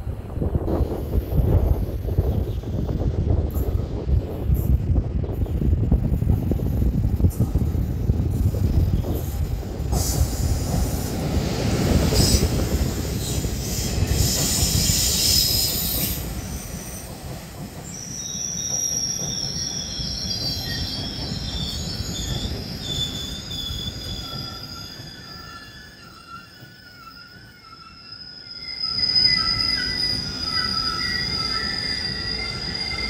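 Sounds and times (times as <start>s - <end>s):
rumble of wheels on rail: 0.0s - 33.0s
high squeal of wheels and brakes: 7.3s - 33.0s.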